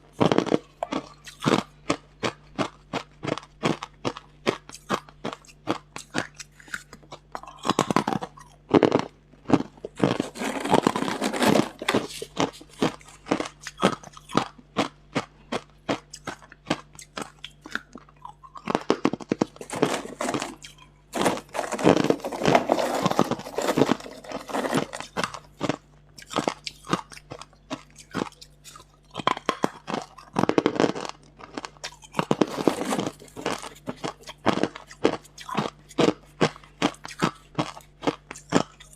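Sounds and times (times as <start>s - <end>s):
ice being chewed: 0.1s - 38.9s.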